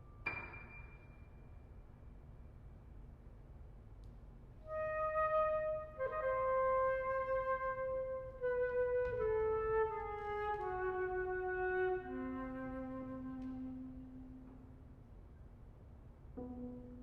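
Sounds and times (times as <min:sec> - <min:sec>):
flute long held notes: 0:04.7 - 0:14.8.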